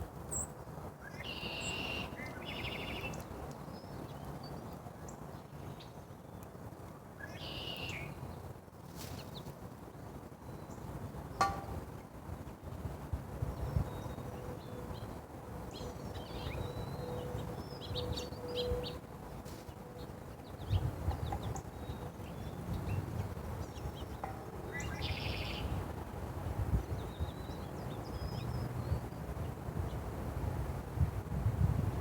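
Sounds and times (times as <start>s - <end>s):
small birds chirping: 17.6s - 25.8s.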